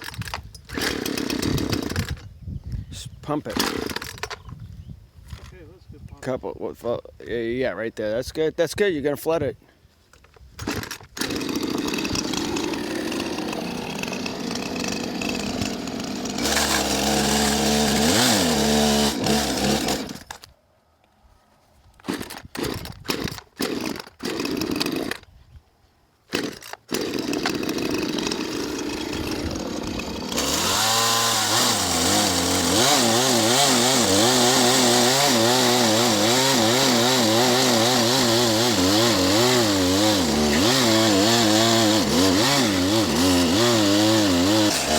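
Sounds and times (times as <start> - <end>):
chainsaw running: 0.0 - 2.3, 3.5 - 4.4, 10.6 - 20.5, 22.0 - 25.3, 26.3 - 44.9.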